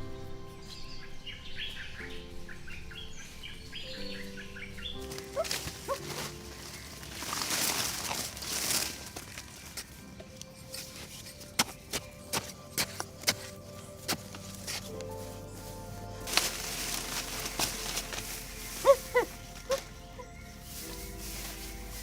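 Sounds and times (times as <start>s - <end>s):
birds chirping: 0.0s - 22.0s
soft background music: 0.0s - 22.0s.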